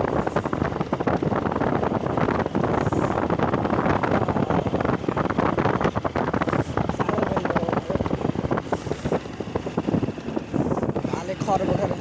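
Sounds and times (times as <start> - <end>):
motorcycle engine: 0.0 - 12.0
road noise: 0.0 - 12.0
wind buffeting microphone: 0.0 - 12.0.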